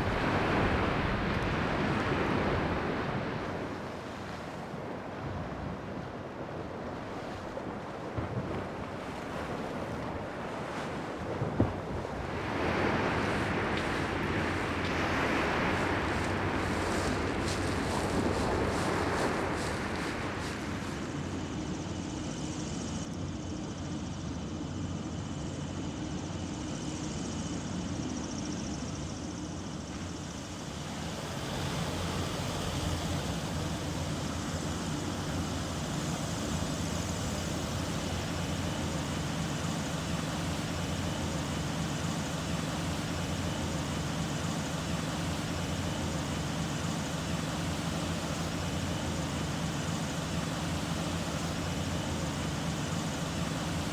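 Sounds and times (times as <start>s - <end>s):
steady engine drone: 0.0s - 53.9s.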